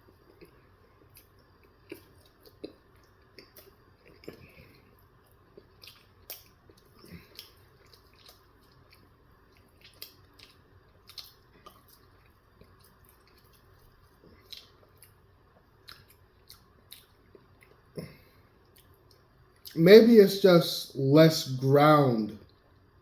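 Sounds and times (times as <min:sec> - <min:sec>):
wet mouth clicks and smacks: 0:05.6 - 0:09.0, 0:09.6 - 0:15.2, 0:15.8 - 0:17.8.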